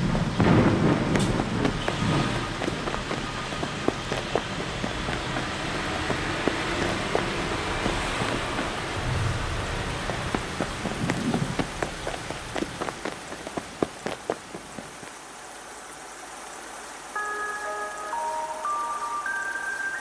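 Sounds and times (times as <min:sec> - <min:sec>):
rain patter with drips: 0:00.0 - 0:20.0
bell-like chime notes: 0:17.2 - 0:20.0.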